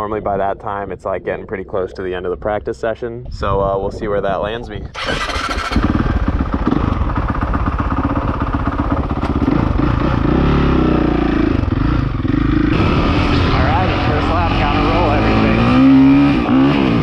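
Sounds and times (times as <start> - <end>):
dirt bike engine revving: 5.0 - 17.0.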